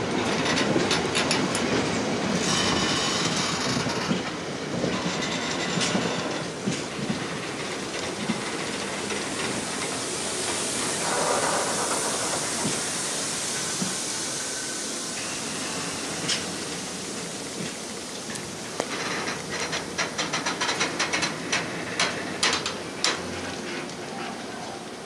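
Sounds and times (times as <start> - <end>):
wheels clattering over rail joints: 0.0 - 9.9, 17.2 - 24.4
freight train rumbling past: 0.0 - 25.0.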